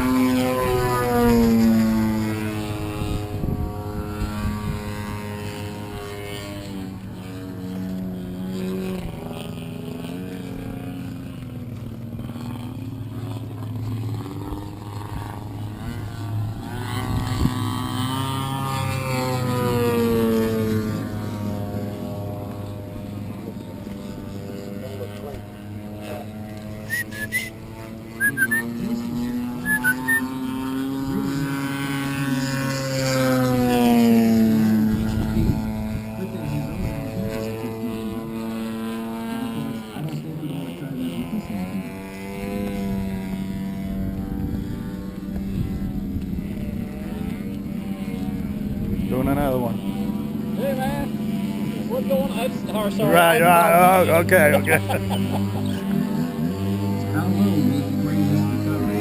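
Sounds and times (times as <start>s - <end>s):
model airplane engine running: 0.0s - 59.0s
short high chirps: 26.9s - 27.5s, 28.2s - 28.7s, 29.6s - 30.2s.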